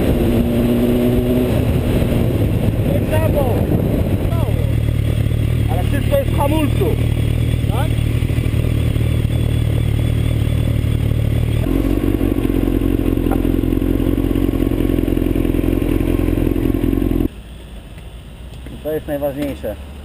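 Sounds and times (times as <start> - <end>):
wind on microphone: 0.0 - 4.8
motorcycle engine running: 0.0 - 19.6.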